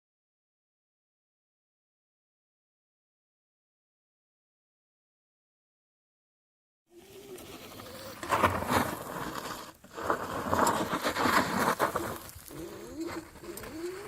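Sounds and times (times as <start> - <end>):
electric motorcycle motor whining: 12.1 - 14.0.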